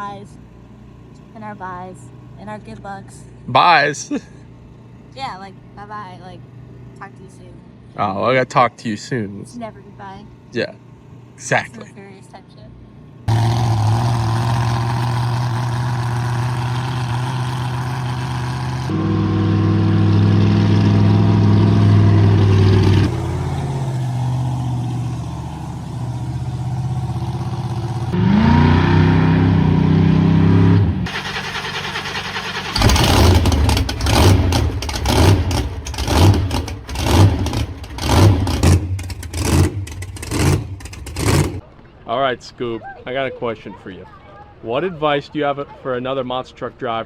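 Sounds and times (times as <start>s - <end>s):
monster truck engine revving: 13.3s - 41.6s.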